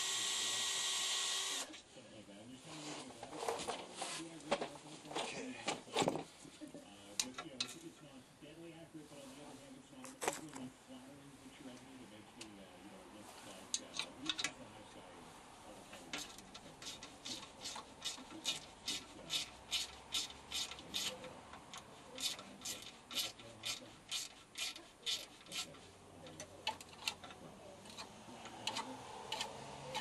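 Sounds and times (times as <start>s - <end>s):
sharp metal tool strokes: 16.2s - 21.2s, 22.2s - 25.9s.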